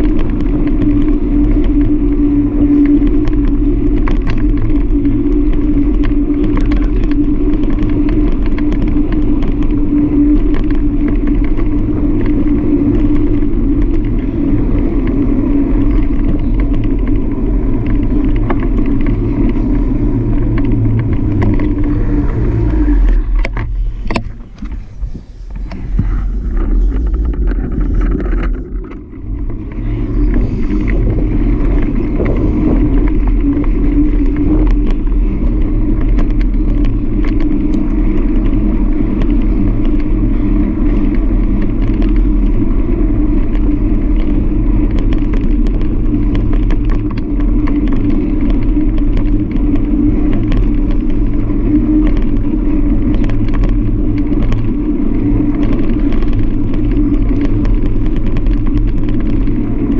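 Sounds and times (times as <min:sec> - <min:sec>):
road rumble: 0:00.0 - 0:59.9
wind noise: 0:00.0 - 0:59.9.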